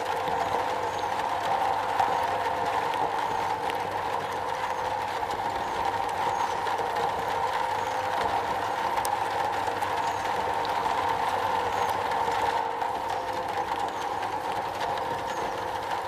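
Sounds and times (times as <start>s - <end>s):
faint ticks of raindrops: 0.0s - 16.0s
rain on a metal roof: 0.0s - 16.0s.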